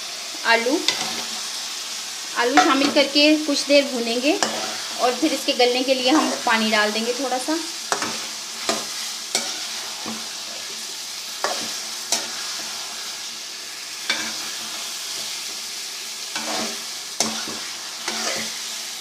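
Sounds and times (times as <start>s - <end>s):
vegetables sizzling in oil: 0.0s - 19.0s
spoon scraping a pot: 4.4s - 5.0s, 16.4s - 18.6s.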